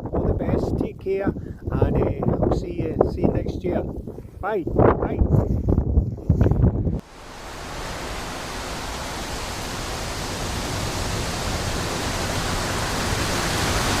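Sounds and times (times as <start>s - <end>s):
steady broadband hiss: 7.0s - 14.0s.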